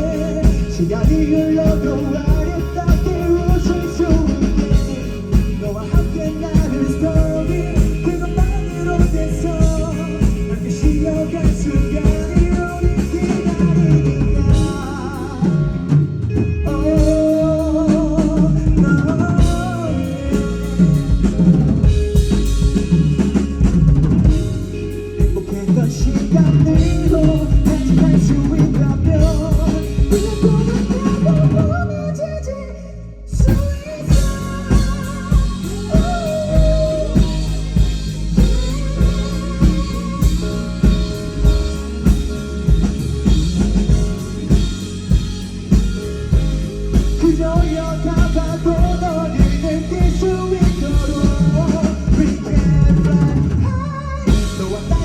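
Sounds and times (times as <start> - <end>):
drum kit beat: 0.0 - 31.9, 33.4 - 53.6, 54.3 - 55.0
rock band playing live: 0.0 - 32.2, 33.3 - 55.0
electric guitar: 0.0 - 55.0.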